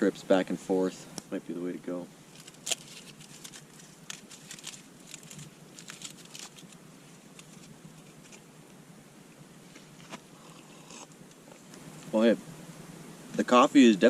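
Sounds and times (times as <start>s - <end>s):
campfire crackling and popping: 1.1s - 8.8s.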